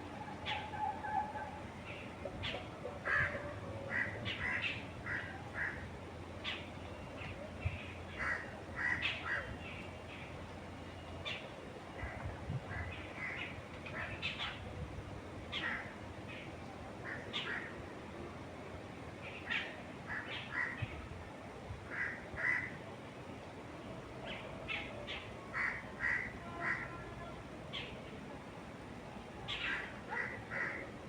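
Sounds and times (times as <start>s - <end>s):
birds calling and chirping: 0.1s - 14.7s.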